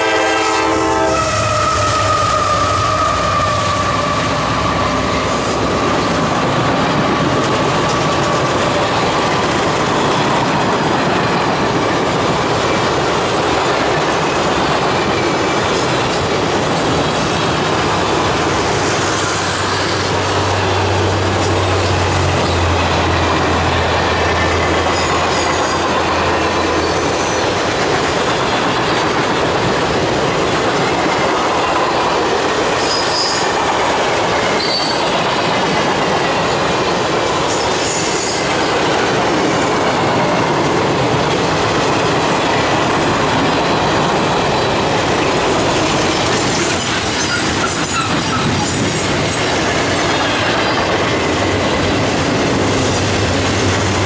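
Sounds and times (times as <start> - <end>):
train wheels rushing on rail: 0.0 - 54.0
high wheel squeals: 32.7 - 33.6, 34.5 - 35.1, 46.1 - 48.8.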